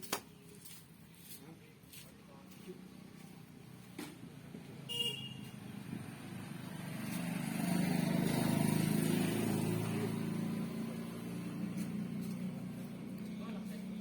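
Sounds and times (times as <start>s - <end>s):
vehicle engine passing: 4.2s - 14.0s.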